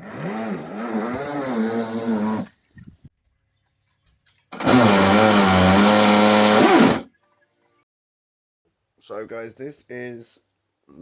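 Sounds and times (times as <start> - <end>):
small electric motor whining: 4.6 - 7.1.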